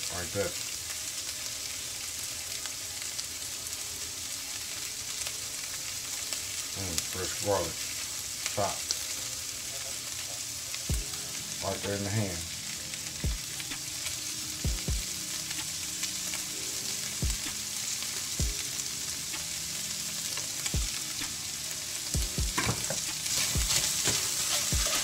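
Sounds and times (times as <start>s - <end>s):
food sizzling in a skillet: 0.0s - 25.0s
utensil knocking against pan: 22.5s - 23.0s.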